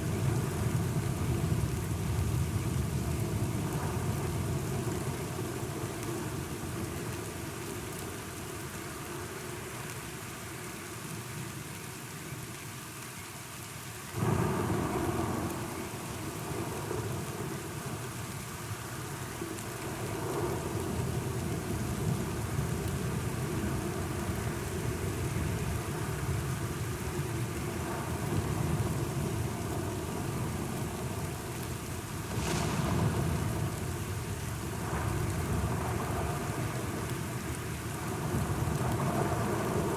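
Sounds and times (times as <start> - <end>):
heavy rain: 0.0 - 39.9
rolling thunder: 31.9 - 39.9
loud thunderclap: 32.2 - 37.0.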